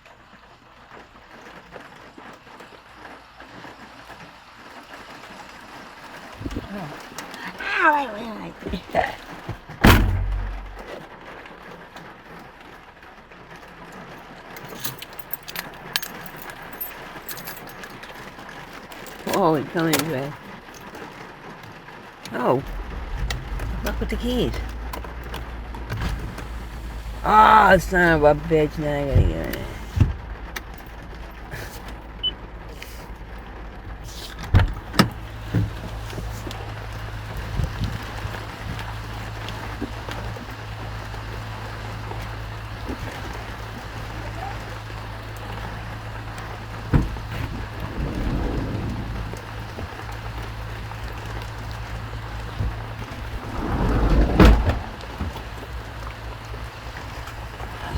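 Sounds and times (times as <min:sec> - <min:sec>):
constant low rumble: 0:06.2 - 0:11.1, 0:13.5 - 0:21.1, 0:22.0 - 0:57.9
low motor hum: 0:08.2 - 0:11.0, 0:22.2 - 0:57.9
knocks and thumps inside car: 0:08.7 - 0:11.0, 0:22.3 - 0:32.0, 0:34.3 - 0:36.7, 0:46.8 - 0:50.0
heavy thud rumble: 0:09.5 - 0:11.0, 0:22.6 - 0:31.6, 0:46.7 - 0:50.5, 0:52.4 - 0:55.9
keys jingling: 0:14.6 - 0:18.2
steady low hum: 0:22.4 - 0:33.2.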